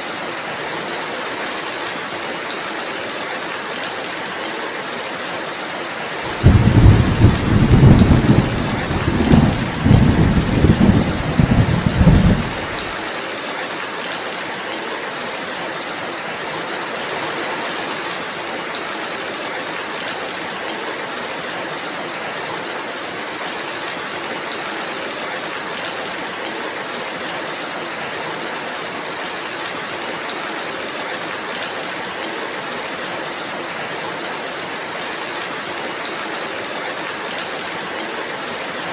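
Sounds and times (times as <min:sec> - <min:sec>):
steady rain falling: 0:00.0 - 0:38.9
thunder rumbling: 0:06.3 - 0:13.0.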